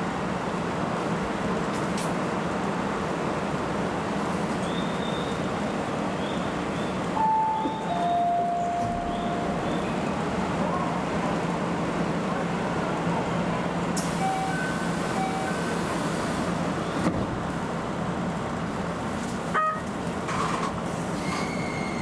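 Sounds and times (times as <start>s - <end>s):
short beeps: 7.2s - 10.0s, 14.2s - 15.6s.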